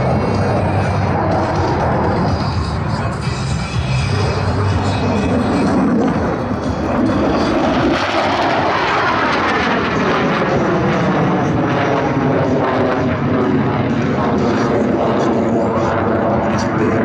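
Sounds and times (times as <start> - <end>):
jets flying past: 0.0 - 17.0.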